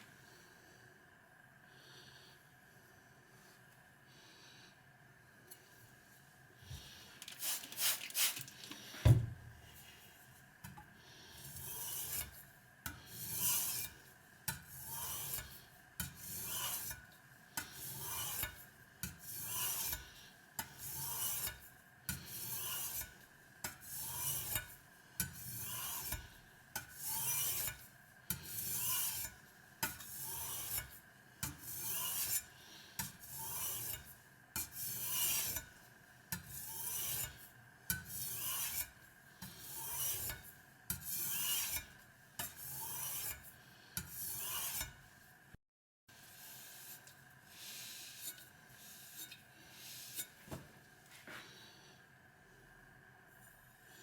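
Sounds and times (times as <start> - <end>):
knife scraping on sharpening stone: 11.4 - 12.4, 13.0 - 13.9, 14.5 - 23.1, 23.7 - 35.7, 36.3 - 45.0, 48.2 - 49.4, 50.1 - 50.4.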